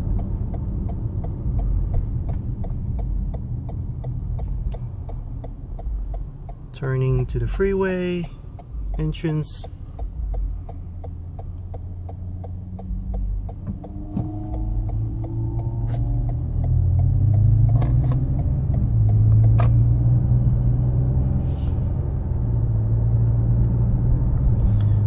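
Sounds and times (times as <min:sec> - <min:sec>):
turn signal relay clicking: 0:00.0 - 0:19.8
car engine accelerating: 0:00.0 - 0:25.0
tyre and road rumble: 0:00.0 - 0:25.0.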